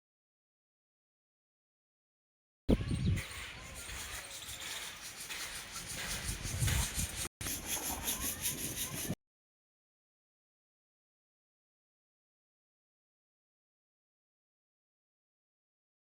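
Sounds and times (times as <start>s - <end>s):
wind rumble on microphone: 2.7s - 4.6s, 5.5s - 9.2s.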